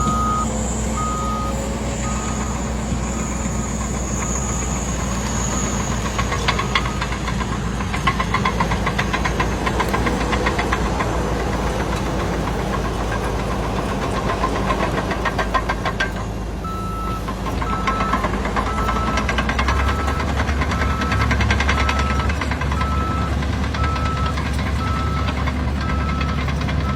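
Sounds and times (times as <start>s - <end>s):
reversing alarm beeps: 0.0s - 7.2s, 16.6s - 26.9s
truck engine running: 0.0s - 26.9s.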